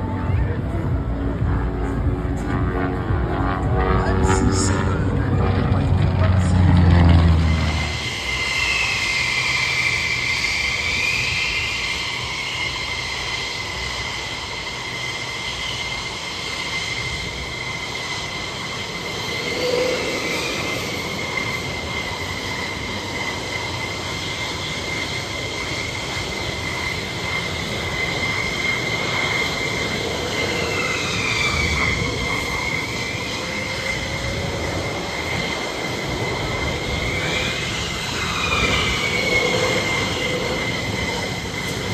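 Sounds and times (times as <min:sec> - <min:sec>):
rushing noise: 0:00.0 - 0:13.6
aircraft engine whine: 0:00.0 - 0:41.9
aircraft passing: 0:00.0 - 0:41.9.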